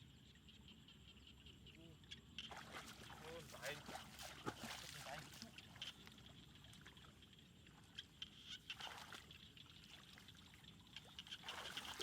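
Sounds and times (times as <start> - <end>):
splashing shallow water: 2.4 - 7.2, 8.6 - 12.0
water sloshes: 2.4 - 7.2, 8.7 - 12.0.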